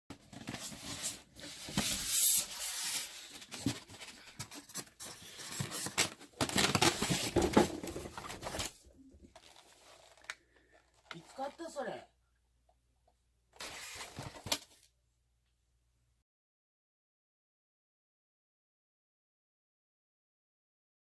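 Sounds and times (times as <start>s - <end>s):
packaging rustling and tearing: 0.2s - 11.6s, 13.6s - 14.9s.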